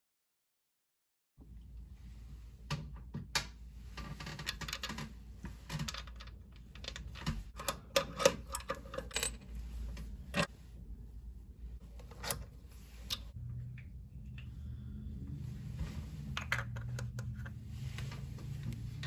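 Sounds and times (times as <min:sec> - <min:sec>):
low hum: 0:09.3 - 0:19.0.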